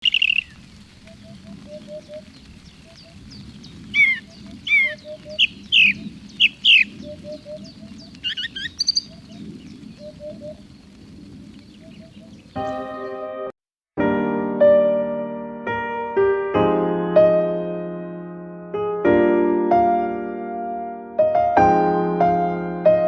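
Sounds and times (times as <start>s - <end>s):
higher bird chirping: 0.0s - 10.9s, 11.5s - 13.2s
soft low bird hoots: 0.0s - 10.9s.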